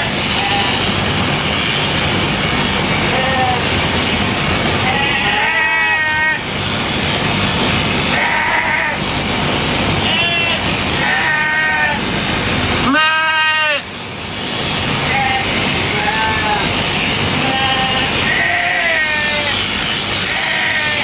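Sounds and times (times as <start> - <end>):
sheep bleating: 0.0 - 0.9, 3.0 - 3.8, 4.8 - 6.4, 8.0 - 9.1, 10.0 - 12.1, 12.8 - 13.9, 15.0 - 21.0
electric clippers running: 14.4 - 21.0.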